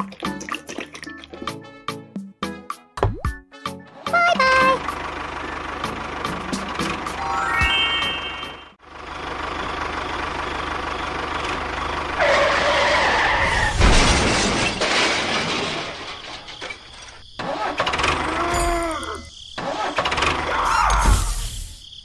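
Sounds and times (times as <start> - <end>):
engine hum: 3.9 - 19.0
pitched tone: 7.2 - 8.8.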